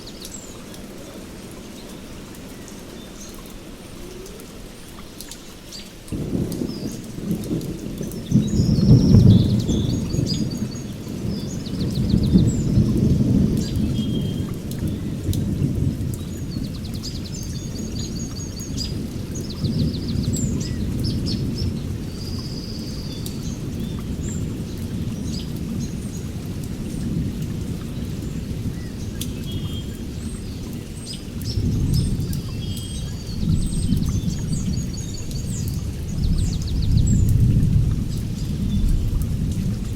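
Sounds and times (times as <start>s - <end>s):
rain: 0.0s - 39.9s
songbirds chirping: 0.0s - 39.9s
thunder rumbling: 6.1s - 39.9s.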